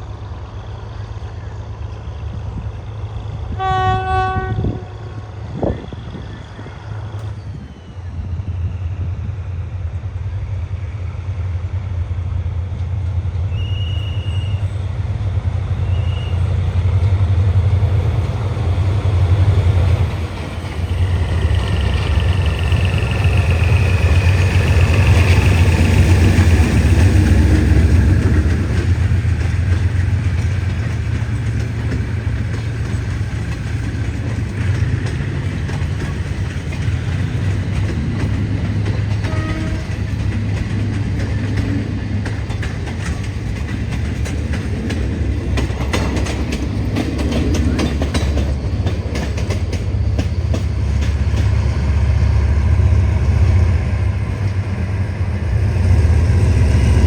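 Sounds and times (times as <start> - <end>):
train engine rumble: 0.0 - 57.0
train horn: 3.5 - 5.8, 13.5 - 14.8, 15.8 - 16.6, 39.2 - 40.2.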